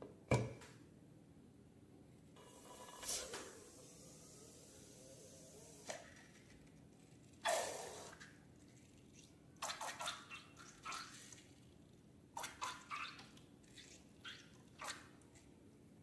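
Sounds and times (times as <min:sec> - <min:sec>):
slime squelching and dripping: 0:07.4 - 0:15.5.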